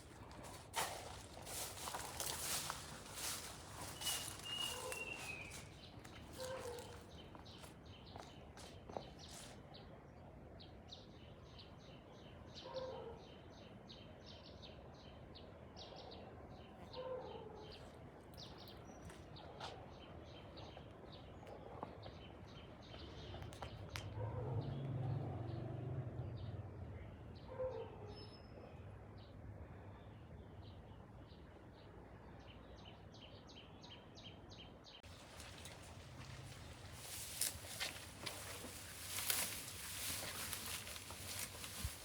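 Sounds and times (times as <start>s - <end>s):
birds chirping: 0.0s - 9.9s, 35.0s - 42.0s
lower bird call: 3.2s - 5.8s.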